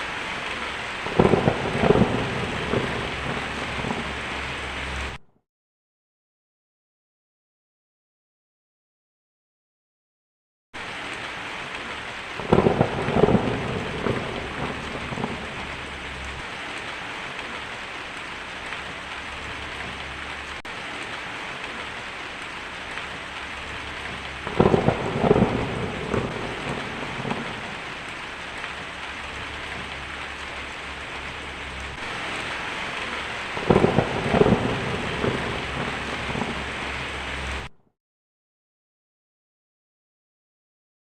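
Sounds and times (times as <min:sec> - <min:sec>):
steady rain falling: 0:00.0 - 0:05.2, 0:10.8 - 0:37.7
thunder cracking and rumbling: 0:00.1 - 0:05.2, 0:10.8 - 0:17.8, 0:18.5 - 0:37.7.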